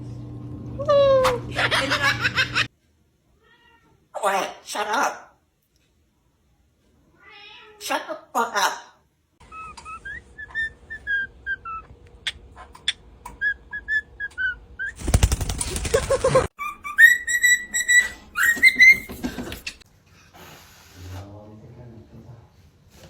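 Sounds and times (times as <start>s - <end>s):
parrot whistling: 9.4s - 11.9s, 13.4s - 15.0s, 16.6s - 19.2s
parrot harsh rasping: 16.6s - 19.8s.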